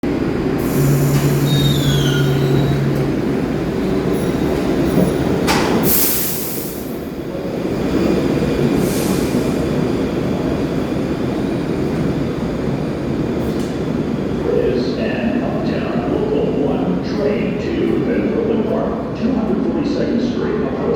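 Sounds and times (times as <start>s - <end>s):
subway train rumbling: 0.0s - 20.9s
wheel squeal: 0.6s - 5.3s.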